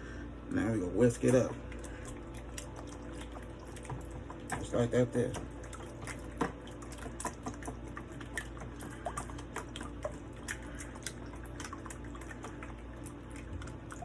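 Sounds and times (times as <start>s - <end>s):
liquid sloshing: 0.6s - 14.0s.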